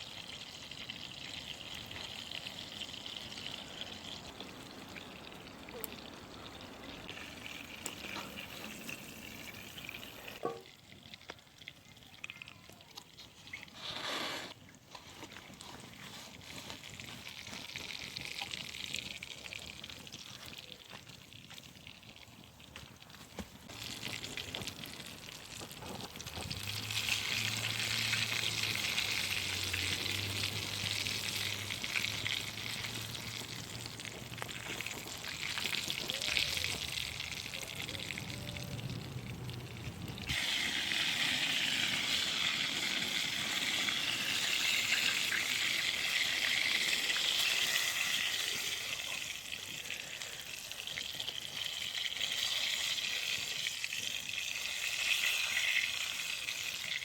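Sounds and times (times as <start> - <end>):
food sizzling over fire: 0.0 - 57.0
low hum of passing traffic: 26.4 - 36.0, 36.8 - 46.8.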